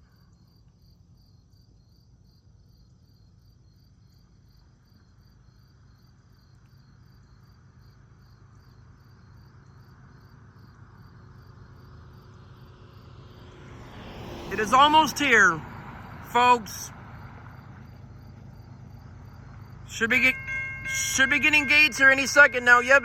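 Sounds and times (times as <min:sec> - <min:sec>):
insects chirping: 0:00.1 - 0:23.0
freight train rumble: 0:19.2 - 0:23.0.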